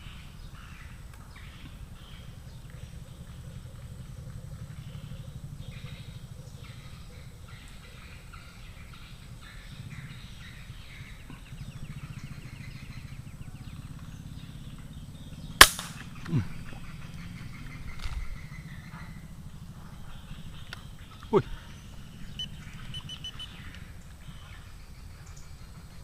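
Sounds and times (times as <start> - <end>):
faint chirps: 0.0 - 26.0
air rifle shot: 15.6 - 16.3.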